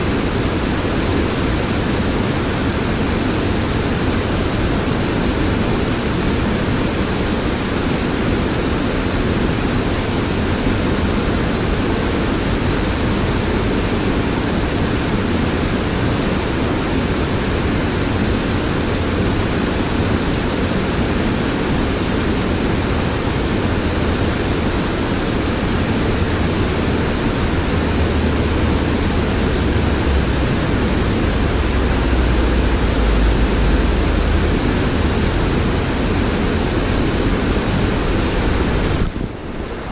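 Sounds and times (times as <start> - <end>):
waterfall rushing: 0.0 - 39.9
deep low rumble: 27.3 - 39.2.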